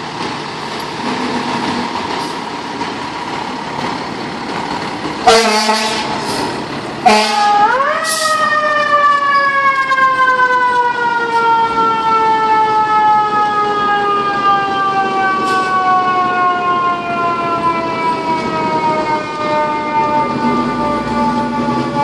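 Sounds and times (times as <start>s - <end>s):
mechanical siren winding down: 7.4s - 22.0s.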